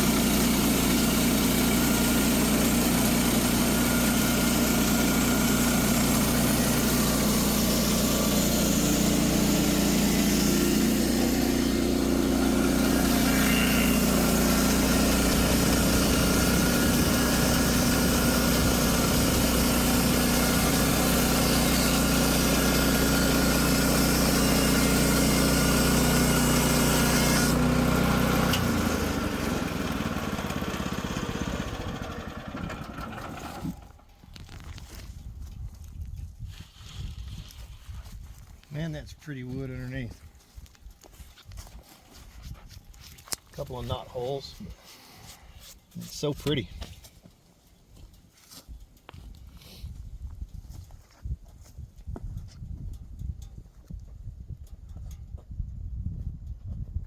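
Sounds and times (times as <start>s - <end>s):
sawmill engine running under load: 0.0s - 33.9s.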